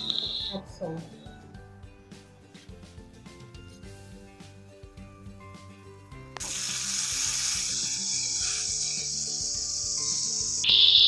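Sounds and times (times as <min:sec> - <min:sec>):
garlic sizzling in hot oil: 0:06.4 - 0:10.7.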